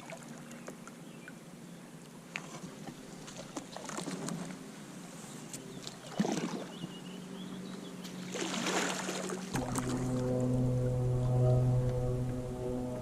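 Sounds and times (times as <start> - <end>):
paddle splashing in water: 2.3 - 4.5, 5.8 - 6.8, 8.2 - 10.6.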